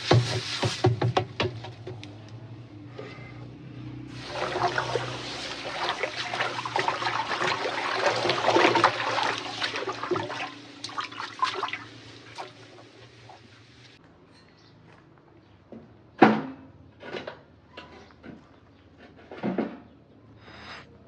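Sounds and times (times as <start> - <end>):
water pouring and splashing: 0.0 - 1.1, 4.1 - 14.0.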